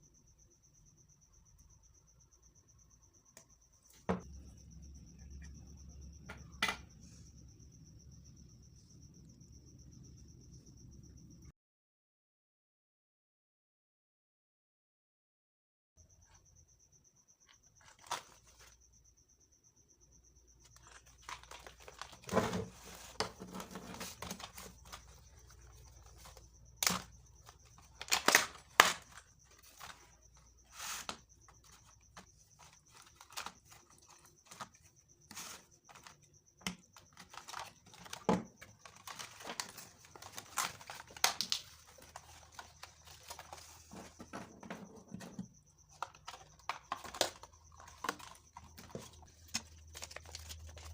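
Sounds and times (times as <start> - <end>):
faint high-pitched tone: 0.0 - 11.5
plastic wrap crinkling and tearing: 27.9 - 29.1.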